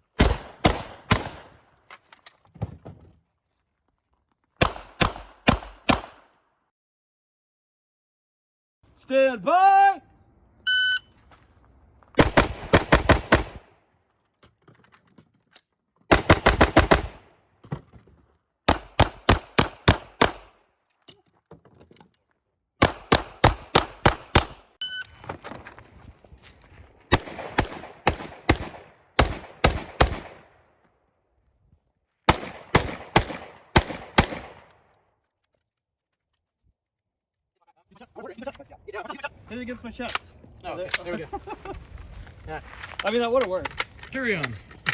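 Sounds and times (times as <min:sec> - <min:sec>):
rifle shots: 0:00.2 - 0:01.6, 0:04.6 - 0:06.3, 0:12.2 - 0:13.7, 0:16.1 - 0:17.3, 0:18.7 - 0:20.6, 0:22.8 - 0:24.6, 0:27.1 - 0:30.6, 0:32.3 - 0:34.7
shot timer beep: 0:10.7 - 0:11.1, 0:24.8 - 0:25.1.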